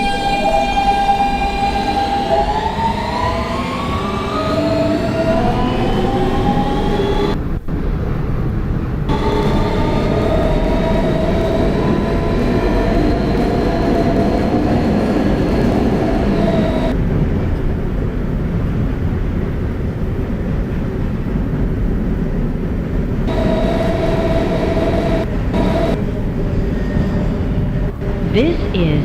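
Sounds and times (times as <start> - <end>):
traction motor whine: 0.0 - 7.4, 9.1 - 17.0, 23.3 - 26.0
wheel and track rumble: 0.0 - 28.3.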